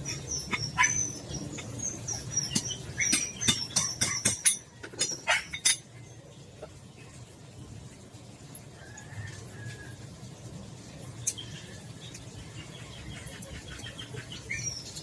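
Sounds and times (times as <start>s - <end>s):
metallic hinge clicks and squeaks: 0.0s - 5.9s.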